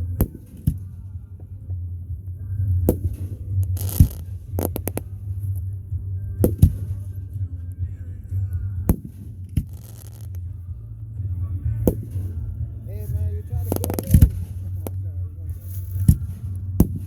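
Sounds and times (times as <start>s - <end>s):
background music: 0.0s - 17.0s
fireworks bangs: 2.9s - 5.1s, 8.9s - 10.5s, 11.9s - 15.0s
firework hiss: 3.0s - 5.1s, 8.9s - 10.4s, 13.5s - 15.0s.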